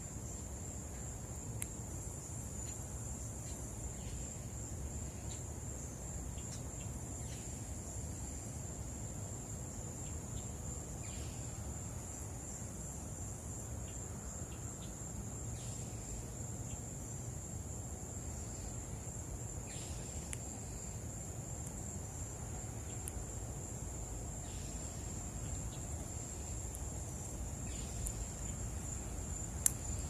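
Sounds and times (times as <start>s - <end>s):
cricket chorus trilling: 0.0s - 30.0s.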